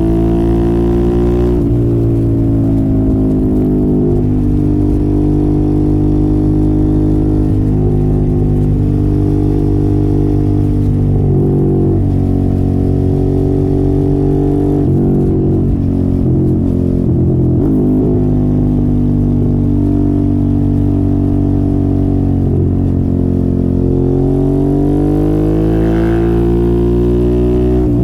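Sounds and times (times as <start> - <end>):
motorcycle engine running loud: 0.0 - 28.0.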